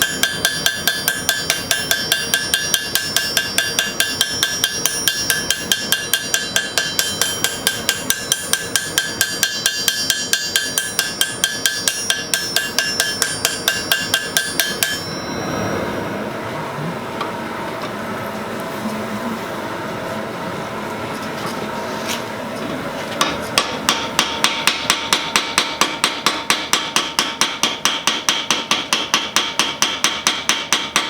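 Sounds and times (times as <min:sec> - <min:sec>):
hammer striking metal on anvil: 0:00.0 - 0:16.0, 0:23.2 - 0:31.0.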